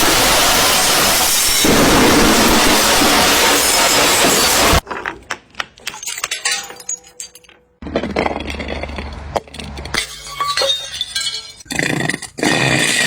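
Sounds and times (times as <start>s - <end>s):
broken glass skittering: 0.0s - 4.8s, 9.9s - 11.6s
glass bottles breaking on concrete: 0.0s - 11.7s
glass shards tinkling: 5.9s - 7.7s, 10.0s - 11.7s.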